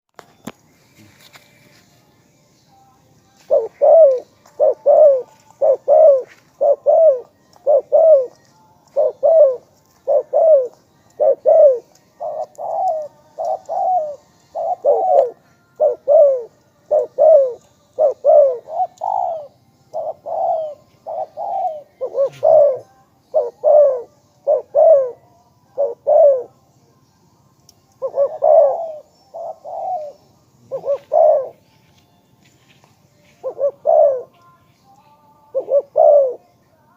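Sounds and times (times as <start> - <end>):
dove cooing: 3.5 - 26.6, 27.9 - 31.6, 33.4 - 34.4, 35.5 - 36.5.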